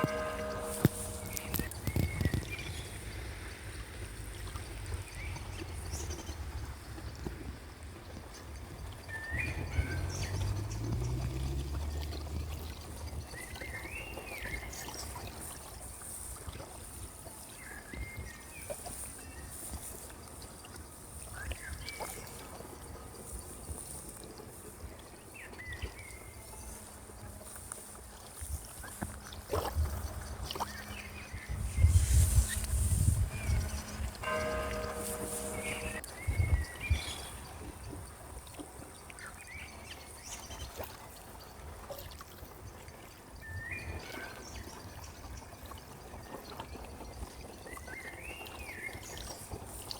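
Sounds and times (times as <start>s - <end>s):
steady background hiss: 0.0s - 3.3s, 30.8s - 36.0s.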